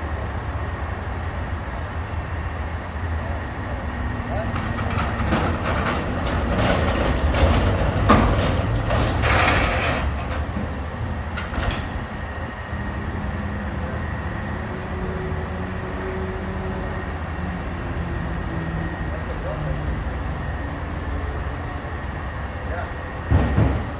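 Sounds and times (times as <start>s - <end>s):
diesel truck engine running: 0.0s - 23.9s
clattering: 4.4s - 10.6s.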